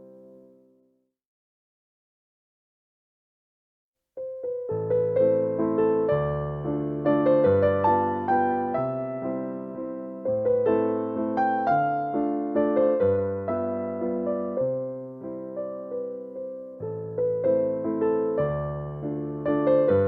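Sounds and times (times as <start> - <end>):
electric piano chords: 4.2 - 20.0.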